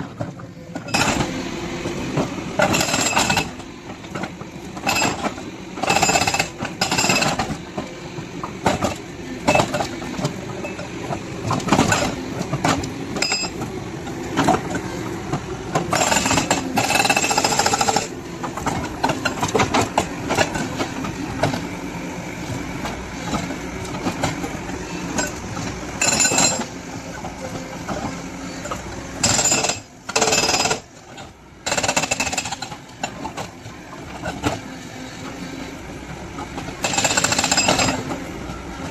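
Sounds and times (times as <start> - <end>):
excavator engine running: 0.0 - 38.9
hydraulic breaker hammering: 15.8 - 20.9, 29.2 - 30.9, 31.6 - 32.8.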